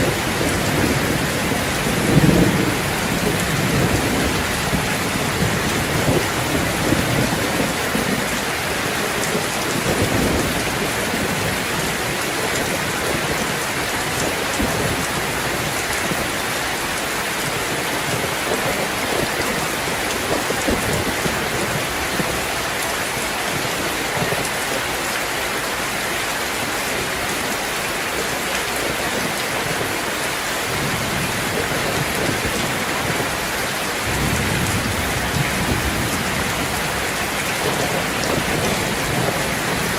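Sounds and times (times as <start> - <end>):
distant thunder rumbling: 0.0 - 16.4, 30.6 - 39.9
heavy rain falling: 0.0 - 39.9.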